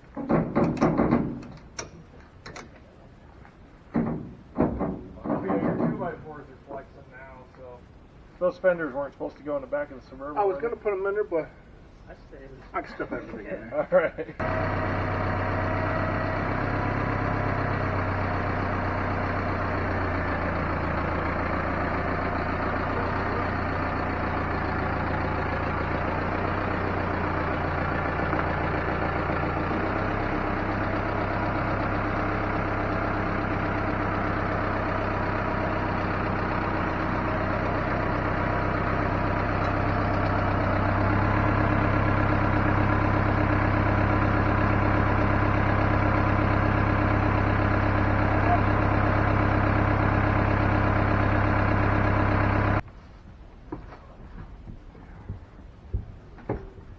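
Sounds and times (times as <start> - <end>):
vehicle engine droning: 14.4 - 52.9.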